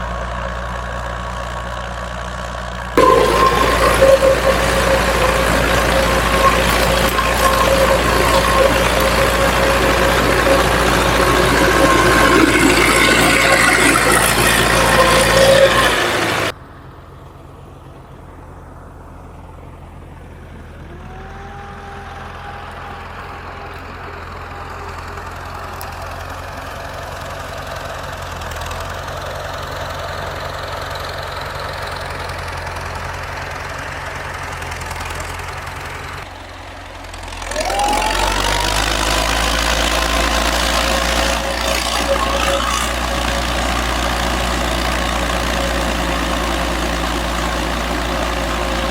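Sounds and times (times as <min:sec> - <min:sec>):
farm machine engine running: 0:00.0 - 0:16.6, 0:20.8 - 0:48.9.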